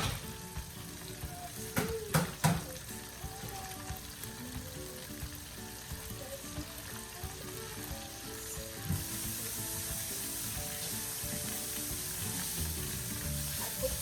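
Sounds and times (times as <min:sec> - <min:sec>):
food sizzling in hot oil: 0:00.0 - 0:14.0
knock: 0:01.8 - 0:02.7.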